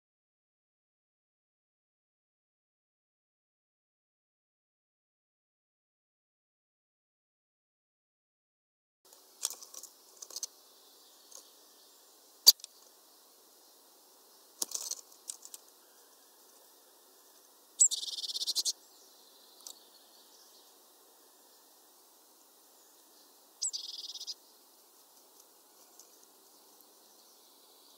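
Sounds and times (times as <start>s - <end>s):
bird calls and clicks: 9.1s - 11.7s, 12.4s - 13.0s, 14.4s - 20.8s, 22.4s - 27.9s
buzzy high bird rattle: 9.4s - 10.5s, 14.6s - 15.7s.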